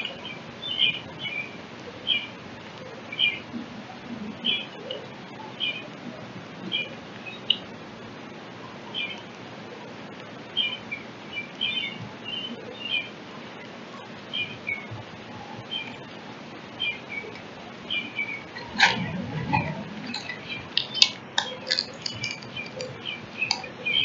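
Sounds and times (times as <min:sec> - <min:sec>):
songbirds chirping: 0:00.0 - 0:24.0
steady outdoor hiss: 0:00.0 - 0:24.0
low rumble: 0:18.3 - 0:23.1.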